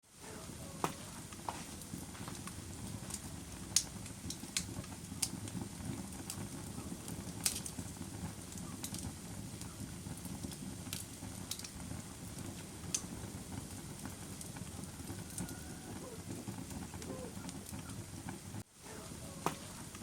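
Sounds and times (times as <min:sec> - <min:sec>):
low rustle of burning: 0:00.0 - 0:20.0
fire crackling and popping: 0:00.1 - 0:20.0.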